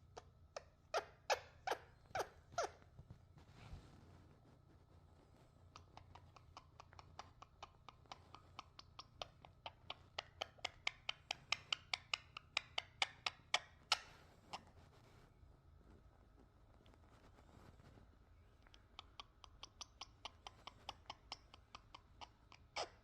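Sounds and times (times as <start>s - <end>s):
parrot clicking: 5.8s - 14.0s, 18.7s - 22.8s.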